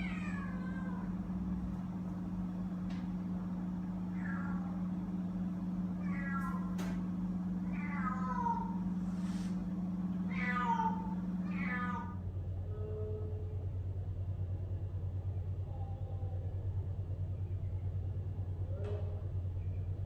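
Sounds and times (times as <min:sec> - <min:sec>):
kittens meowing in distress: 0:00.0 - 0:01.4, 0:04.1 - 0:05.0, 0:05.9 - 0:07.0, 0:07.6 - 0:09.3, 0:10.2 - 0:12.2
low hum: 0:00.0 - 0:20.0.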